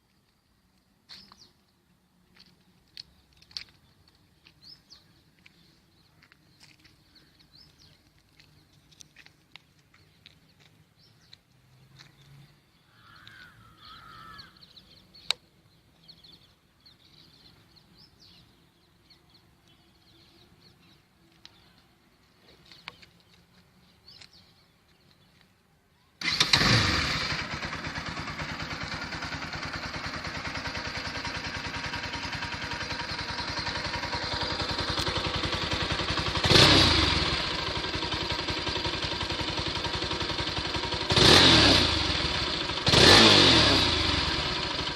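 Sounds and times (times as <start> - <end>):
faint ambient chirps and clicks: 0.0 - 25.7
motorcycle engine starting and idling: 26.2 - 44.9.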